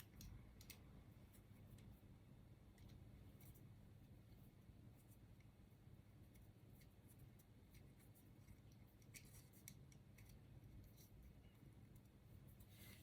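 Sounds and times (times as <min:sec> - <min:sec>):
small clicks of parts handled: 0:00.0 - 0:00.9.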